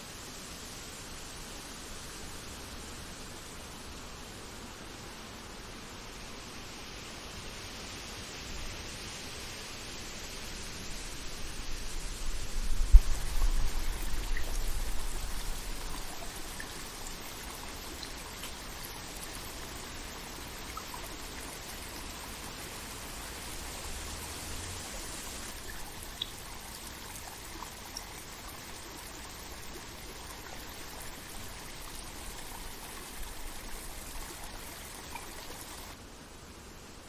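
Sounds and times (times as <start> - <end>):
stream water rushing: 9.4 - 36.0
faint ticks: 12.4 - 22.7, 24.8 - 36.0.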